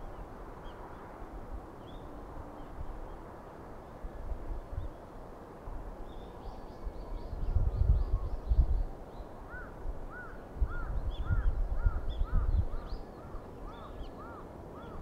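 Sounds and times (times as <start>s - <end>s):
wind buffeting the microphone: 4.0s - 15.0s
bird calling: 9.5s - 15.0s.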